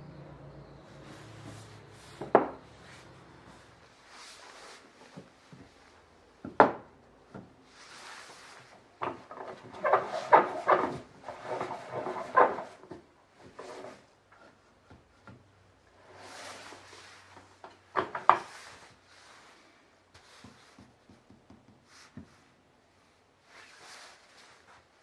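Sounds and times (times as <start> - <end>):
soft scraping sweep: 0.6 - 5.0.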